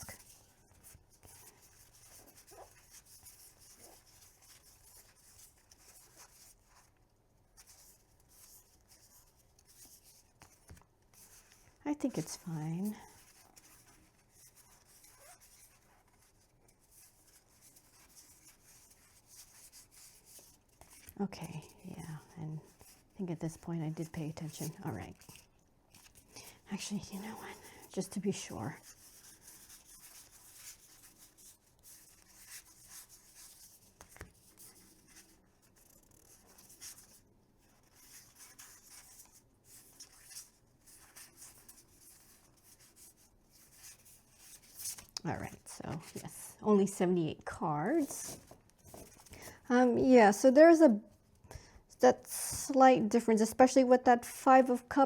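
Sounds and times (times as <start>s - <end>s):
cards rustling and sliding: 48.0s - 49.6s.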